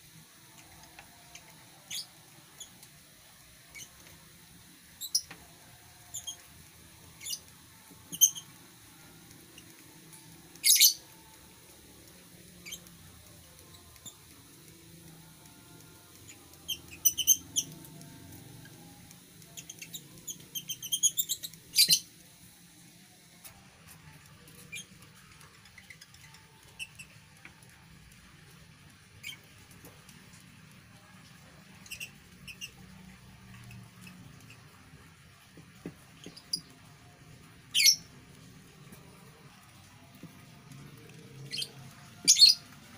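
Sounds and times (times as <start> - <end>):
lovebirds chirping: 7.1 - 9.7, 10.5 - 11.4, 16.3 - 18.0, 18.8 - 22.2, 36.2 - 36.8, 37.7 - 42.8.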